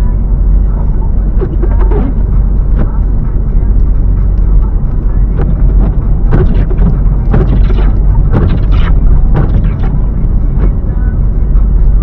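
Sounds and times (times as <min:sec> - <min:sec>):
car driving low rumble: 0:00.0 - 0:12.0
sharp thumps from suspension: 0:05.4 - 0:09.9.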